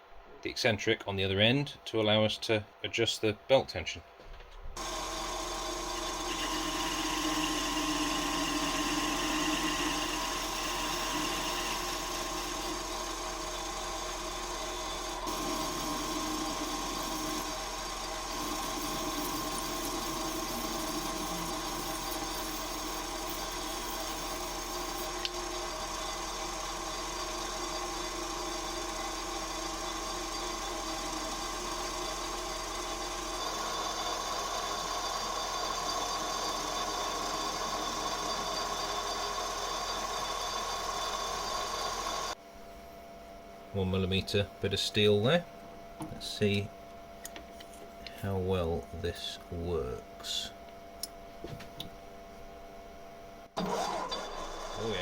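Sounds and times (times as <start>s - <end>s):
metal lathe humming: 4.8s - 42.4s.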